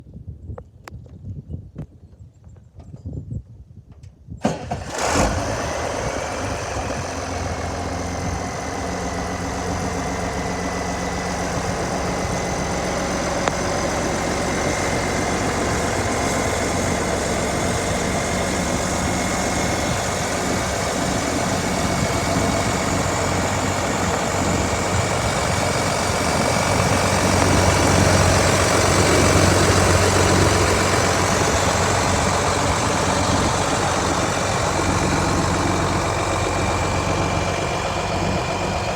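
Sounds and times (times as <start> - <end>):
tractor diesel engine idling: 4.5 - 38.9.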